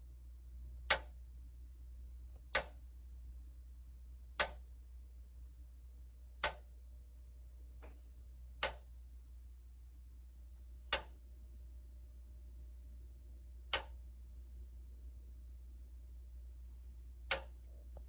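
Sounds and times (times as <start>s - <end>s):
low steady hum: 0.0s - 18.0s
sharp clicks: 0.9s - 1.2s, 2.3s - 2.8s, 4.4s - 4.6s, 6.4s - 6.7s, 8.6s - 8.9s, 10.9s - 11.2s, 13.7s - 14.0s, 17.3s - 17.6s.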